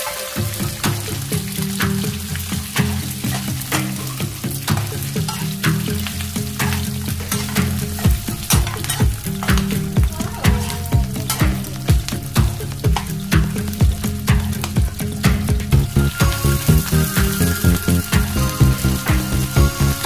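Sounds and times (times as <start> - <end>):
metal spatula scraping a pan: 0.0 - 15.3
background music with a beat: 0.0 - 20.0
pork sizzling in a wok: 0.0 - 20.0.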